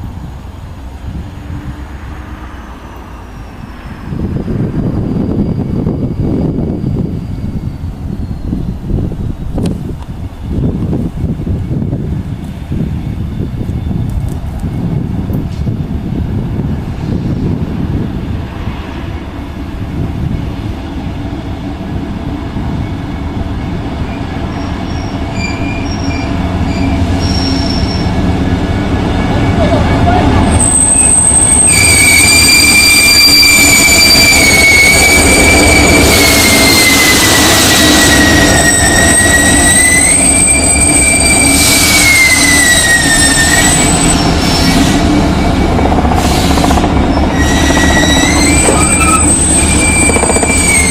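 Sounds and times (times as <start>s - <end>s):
diesel locomotive engine running: 0.0s - 50.9s
rolling train rumble: 0.0s - 50.9s
high-pitched wheel squeals: 2.4s - 9.1s, 24.1s - 28.1s, 29.3s - 50.9s.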